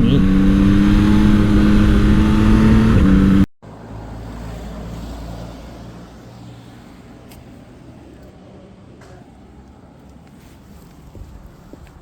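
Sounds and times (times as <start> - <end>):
motorcycle engine running: 0.0 - 3.5.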